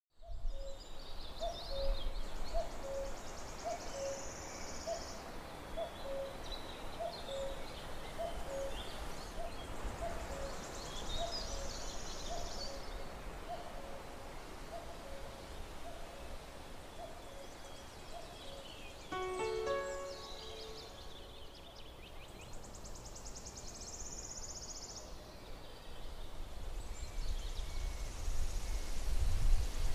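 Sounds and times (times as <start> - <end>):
bird chirps and trills: 19.0 - 22.0.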